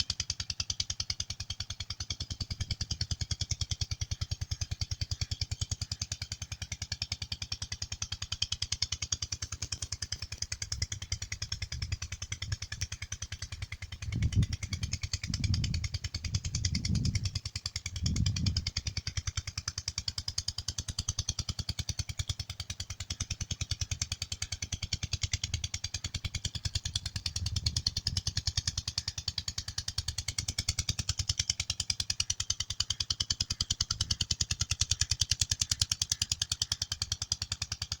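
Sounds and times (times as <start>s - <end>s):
diesel pump engine running: 0.0s - 38.0s.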